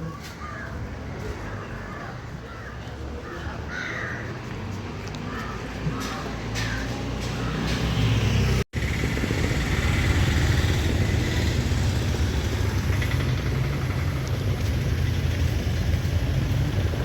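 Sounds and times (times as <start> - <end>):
road and wind noise: 0.0 - 17.0
vehicle engine rumbling: 4.0 - 17.0.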